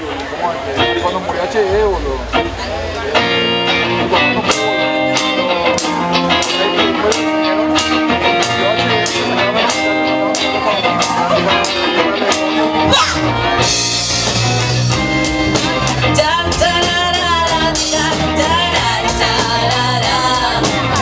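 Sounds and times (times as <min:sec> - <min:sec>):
bass guitar: 0:00.0 - 0:21.0
electric guitar: 0:00.0 - 0:21.0
drum kit with cymbals: 0:01.7 - 0:21.0
person singing: 0:15.8 - 0:21.0.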